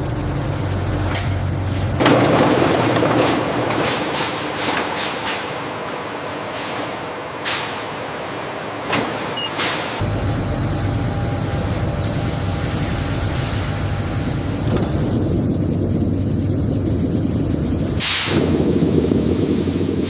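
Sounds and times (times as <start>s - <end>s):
low engine rumble: 0.0s - 2.3s, 10.0s - 20.0s
sharp hisses of released air: 18.0s - 18.4s.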